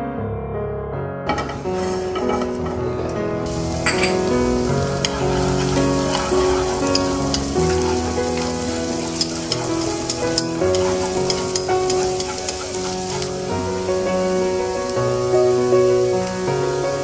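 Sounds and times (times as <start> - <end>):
hot oil sizzling: 1.3 - 17.0
chopsticks ticking in wok: 4.6 - 13.6.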